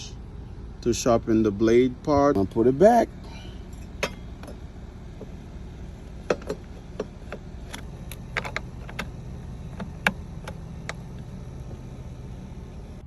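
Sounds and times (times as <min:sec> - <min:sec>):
light metallic clicks and knocks: 0:06.2 - 0:11.3.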